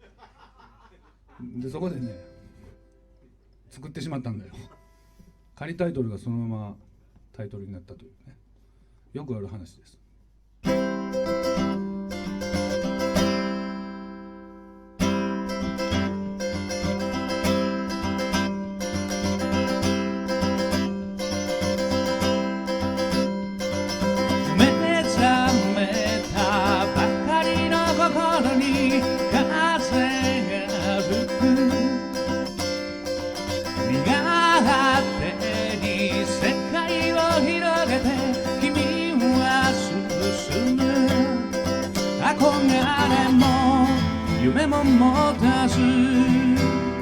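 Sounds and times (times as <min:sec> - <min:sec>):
acoustic guitar chords: 0:10.6 - 0:47.0
wavering melody line: 0:21.8 - 0:47.0.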